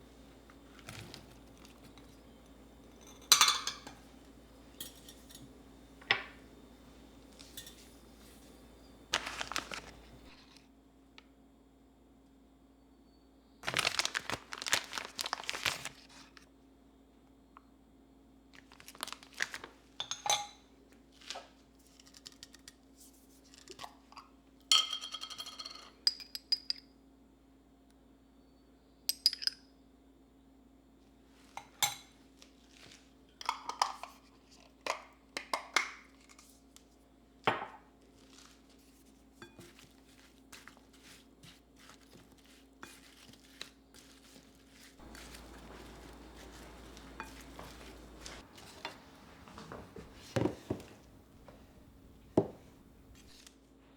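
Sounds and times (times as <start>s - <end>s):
faint steady hum: 0.0s - 21.1s, 22.7s - 53.9s
dishes and glassware clinking: 2.9s - 4.1s, 4.7s - 6.4s, 7.4s - 8.2s, 20.0s - 20.7s, 45.0s - 53.3s.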